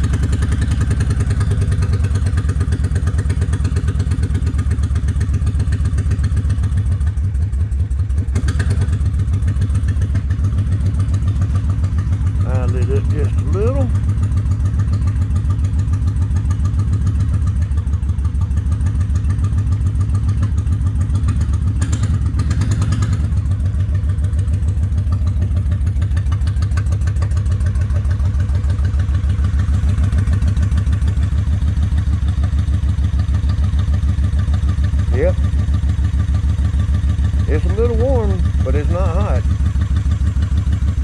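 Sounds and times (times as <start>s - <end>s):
motorcycle engine idling: 0.0s - 41.0s.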